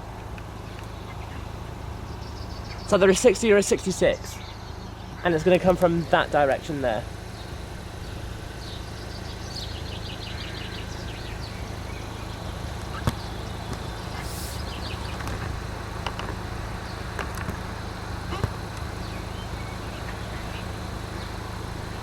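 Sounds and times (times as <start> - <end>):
steady low rumble: 0.0 - 22.0
small bird twittering: 0.6 - 5.9, 7.2 - 15.5.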